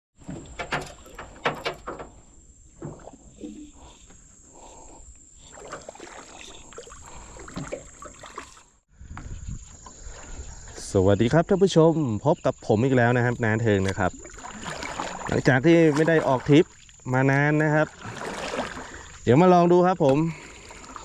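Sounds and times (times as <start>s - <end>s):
knocks and clatter around boat: 0.2s - 4.9s, 7.1s - 8.5s, 13.7s - 17.0s, 20.0s - 21.0s
water sloshing: 0.2s - 8.8s, 9.5s - 11.0s, 12.9s - 21.0s.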